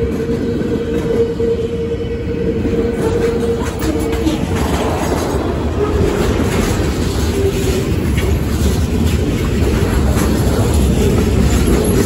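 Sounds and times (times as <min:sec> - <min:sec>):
steel wheels rumbling on rail: 0:00.0 - 0:12.0
wheels clacking over rail joints: 0:02.9 - 0:12.0.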